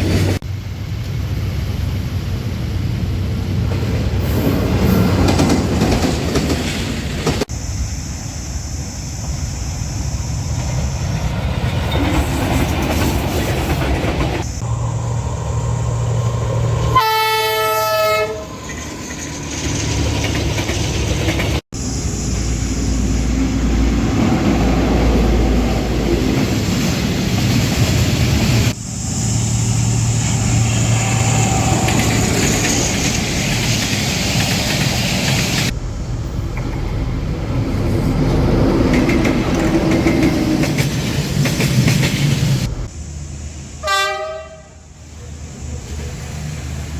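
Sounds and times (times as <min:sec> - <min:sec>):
diesel trains rumbling past: 0:00.0 - 0:46.9
train horn blast: 0:16.8 - 0:18.6, 0:43.8 - 0:44.9.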